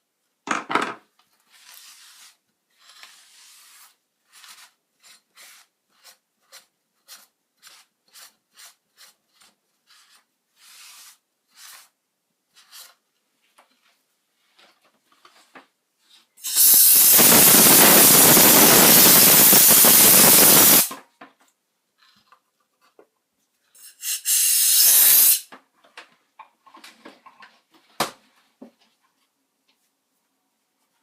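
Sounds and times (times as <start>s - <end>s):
pressurised spray hissing: 16.5s - 20.9s, 24.8s - 25.4s.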